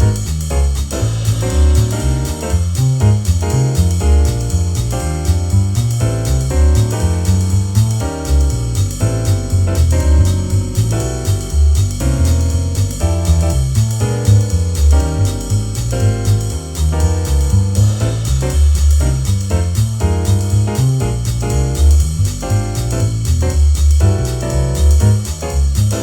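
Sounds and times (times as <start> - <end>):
drums with ride cymbal: 0.0 - 26.0
piano comping chords: 0.0 - 26.0
walking bass: 0.0 - 26.0.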